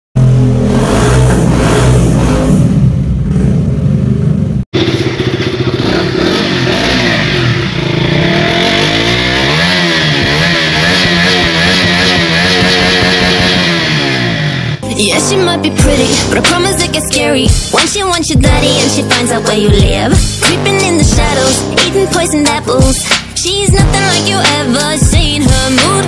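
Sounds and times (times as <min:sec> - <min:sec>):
motorcycle engine revving: 0:00.2 - 0:26.0
motorcycle engine idling: 0:02.8 - 0:09.2.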